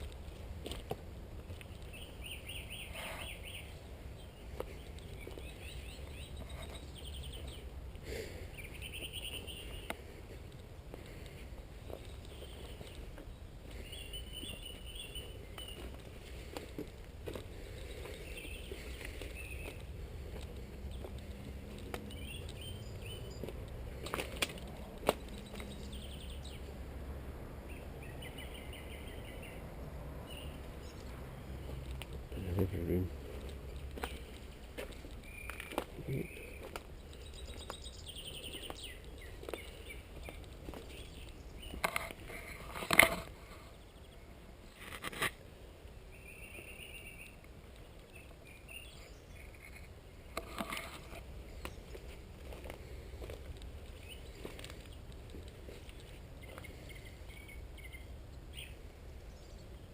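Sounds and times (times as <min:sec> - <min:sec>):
small bird chirping trills: 0:01.6 - 0:07.8, 0:08.5 - 0:10.0, 0:11.6 - 0:16.0, 0:32.4 - 0:42.6, 0:53.9 - 0:59.9.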